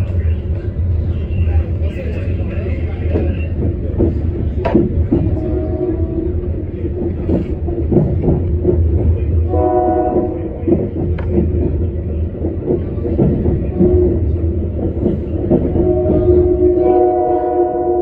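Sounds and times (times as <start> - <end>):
train rumbling: 0.0 - 18.0
train wheel clicks: 2.0 - 5.6, 6.4 - 16.7
train horn chord: 5.4 - 6.3, 9.5 - 10.4, 15.8 - 18.0.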